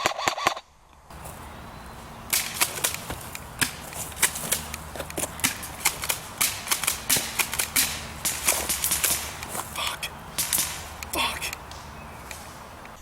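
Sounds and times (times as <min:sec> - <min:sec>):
airsoft gunfire cracks: 0:02.3 - 0:09.6, 0:10.3 - 0:12.6.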